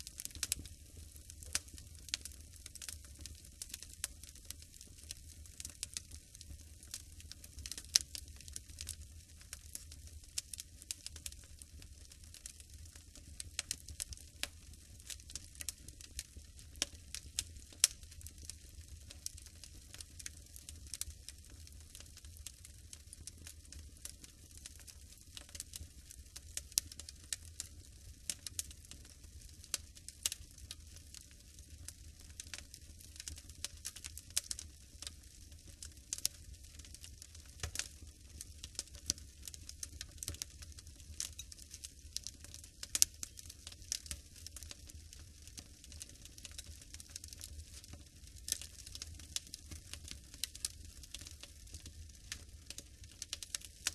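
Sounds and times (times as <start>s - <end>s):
low steady fire rumble: 0.0s - 53.9s
wood fire crackling and popping: 0.0s - 53.9s.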